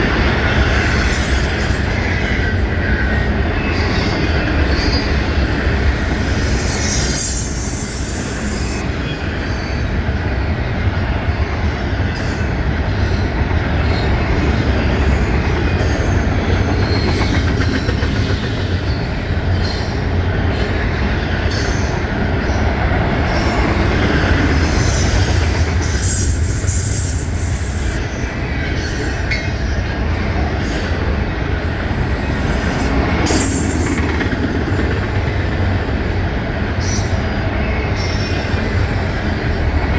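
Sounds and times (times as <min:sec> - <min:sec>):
train wheels rumbling on rail: 0:00.0 - 0:39.9
high-pitched wheel squeal: 0:04.7 - 0:09.9, 0:32.5 - 0:34.0.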